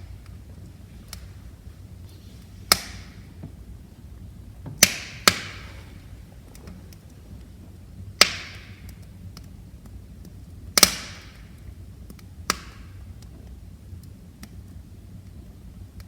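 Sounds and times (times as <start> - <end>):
low rumble of flames: 0.0 - 16.0
wood fire crackling: 0.0 - 16.0
loud sharp pops with hiss: 2.4 - 3.6, 4.8 - 7.1, 8.2 - 10.0, 10.8 - 13.0.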